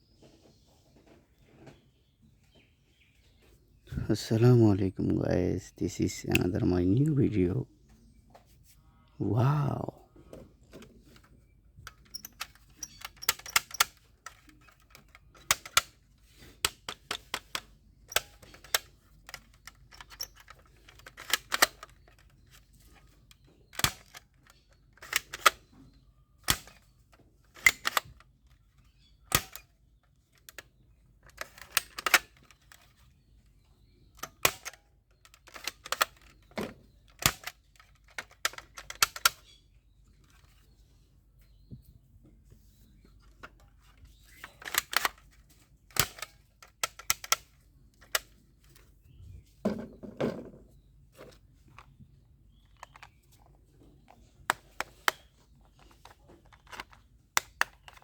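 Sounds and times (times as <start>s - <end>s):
plastic toy gun clicks: 6.2s - 6.7s, 10.7s - 25.8s, 26.4s - 33.0s, 34.1s - 39.6s, 44.2s - 48.8s, 52.6s - 53.4s, 54.1s - 58.0s.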